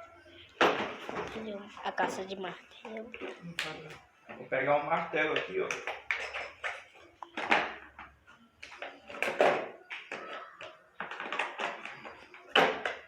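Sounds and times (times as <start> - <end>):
tools knocking and clattering: 5.3 - 13.0.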